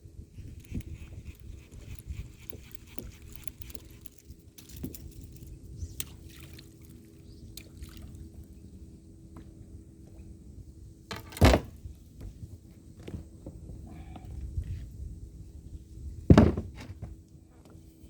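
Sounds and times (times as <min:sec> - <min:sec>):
wind on microphone: 0:00.0 - 0:06.2, 0:13.4 - 0:16.8
water lapping at kayak: 0:05.9 - 0:08.6.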